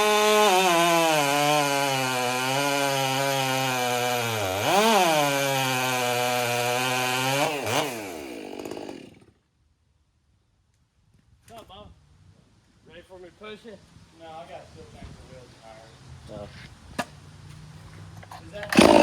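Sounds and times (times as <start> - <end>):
chainsaw cutting wood: 0.0 - 9.4, 18.6 - 19.0.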